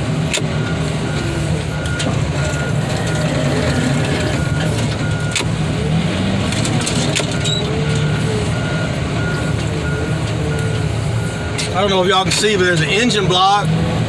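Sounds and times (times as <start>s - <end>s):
heavy machine engine running: 0.0s - 14.0s
backup alarm beeps: 0.5s - 5.5s, 7.4s - 11.6s.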